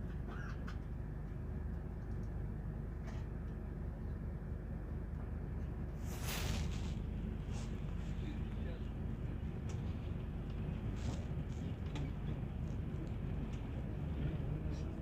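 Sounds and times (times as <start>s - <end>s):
short air hiss: 6.0s - 7.8s.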